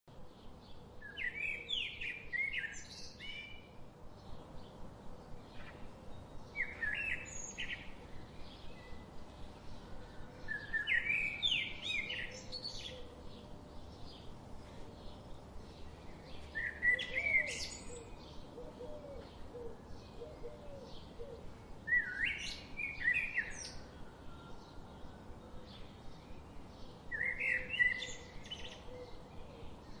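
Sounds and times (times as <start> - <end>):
bird song phrase: 0.1 - 30.0.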